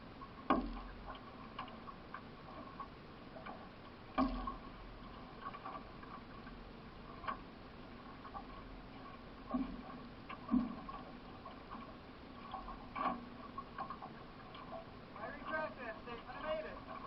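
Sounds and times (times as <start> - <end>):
water splashing off paddle: 9.4 - 17.0.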